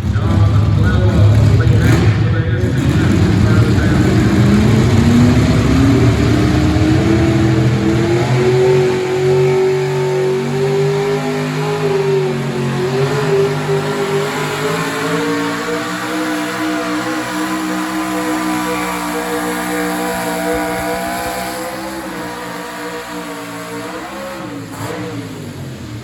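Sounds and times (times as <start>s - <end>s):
truck engine revving under load: 0.0s - 26.0s.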